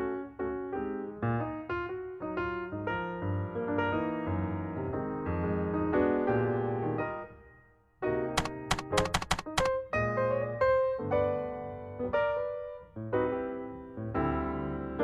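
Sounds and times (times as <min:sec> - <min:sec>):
electric piano chords: 0:08.4 - 0:09.7.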